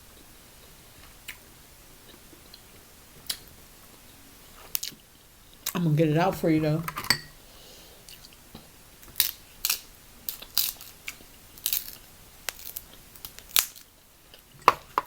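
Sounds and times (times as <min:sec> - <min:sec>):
crab shell cracking: 0:09.0 - 0:14.5.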